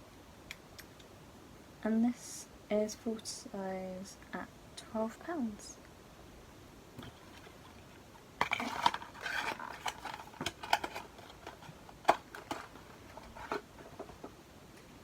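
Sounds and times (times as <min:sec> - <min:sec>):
packaging rustling: 0:07.0 - 0:14.3.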